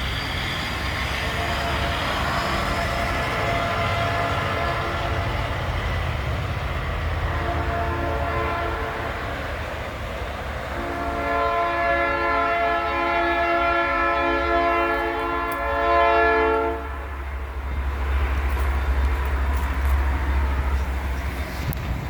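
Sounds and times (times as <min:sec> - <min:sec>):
multi-note air horn: 0:07.3 - 0:09.1, 0:10.8 - 0:17.0
steady low rumble: 0:16.8 - 0:22.0.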